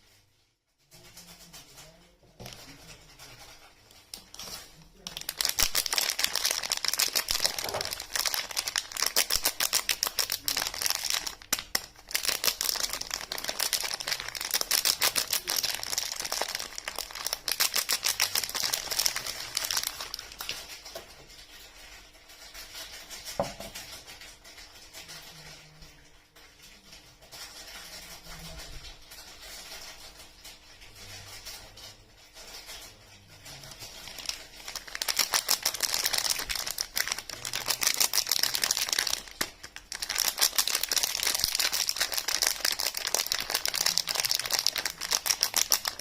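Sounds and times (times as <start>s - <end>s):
packaging crinkling: 2.4s - 24.8s, 32.4s - 46.0s.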